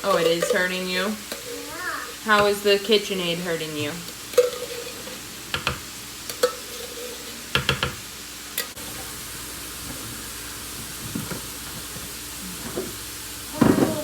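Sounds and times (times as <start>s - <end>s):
utensil clinking on cookware: 0.0s - 2.6s, 4.0s - 8.0s
meat sizzling in a frying pan: 0.0s - 14.0s.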